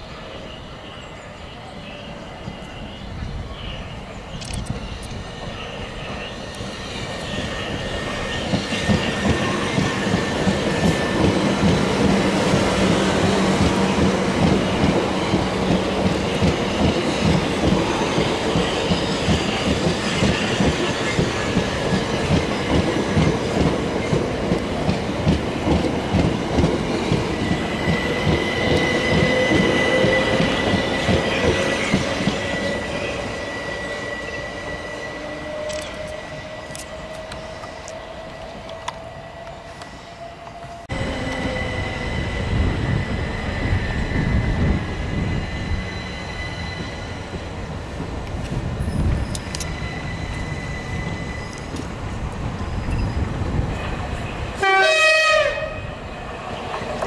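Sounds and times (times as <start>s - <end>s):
high steady squeal: 0.1s - 13.5s, 26.9s - 47.7s, 48.8s - 54.5s.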